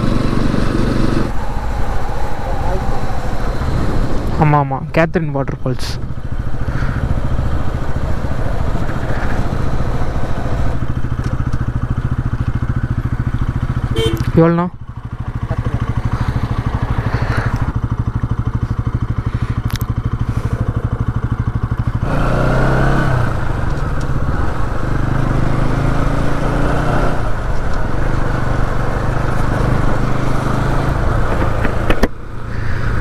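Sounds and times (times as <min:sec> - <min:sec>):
motorcycle engine idling and pulling away: 0:00.0 - 0:04.3, 0:05.8 - 0:33.0.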